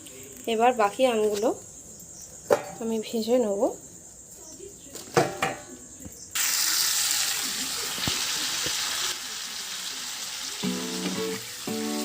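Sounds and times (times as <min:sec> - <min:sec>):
food frying in hot oil: 0:06.4 - 0:12.0.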